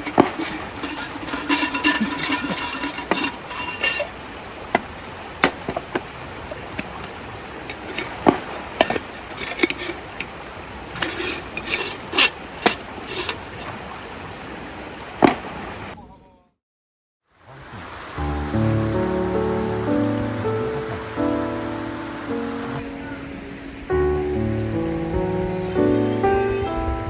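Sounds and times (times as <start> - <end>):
objects being handled: 0.0 - 14.0
steady background hiss: 0.0 - 16.0, 17.4 - 27.0.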